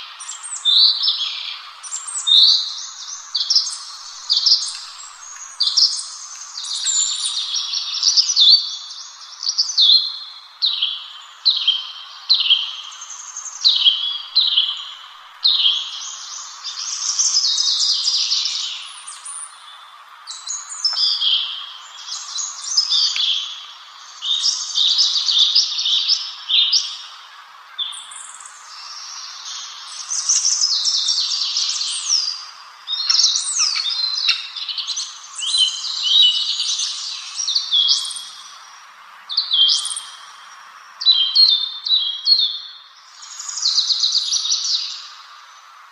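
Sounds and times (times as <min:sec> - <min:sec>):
faint hiss: 0:00.0 - 0:45.9
songbird singing: 0:00.0 - 0:45.9.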